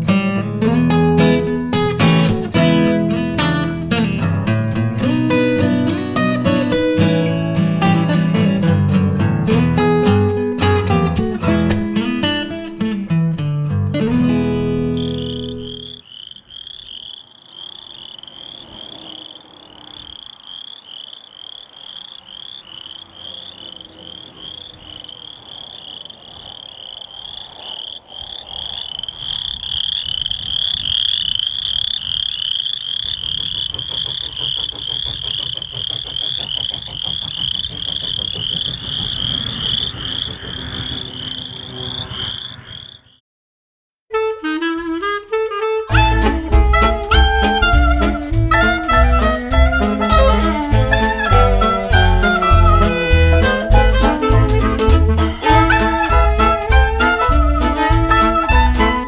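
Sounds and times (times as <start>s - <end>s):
frogs trilling: 14.9s - 43.2s
low rumble: 33.4s - 42.5s.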